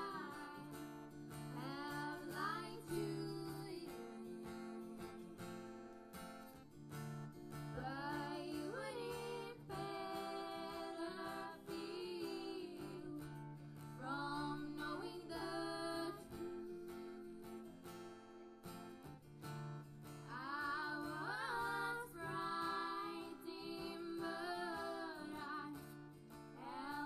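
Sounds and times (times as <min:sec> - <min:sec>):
person singing: 0:00.0 - 0:00.8, 0:01.5 - 0:05.5, 0:07.8 - 0:13.4, 0:14.0 - 0:17.7, 0:20.3 - 0:25.9, 0:26.6 - 0:27.0
acoustic guitar strumming: 0:00.0 - 0:27.0.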